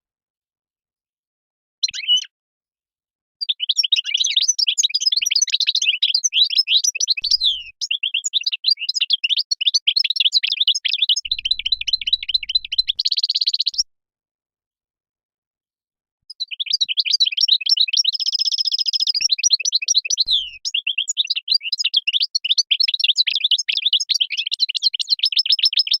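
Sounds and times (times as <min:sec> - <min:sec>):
goldfinch singing: 0:03.5 - 0:13.8, 0:16.3 - 0:26.0.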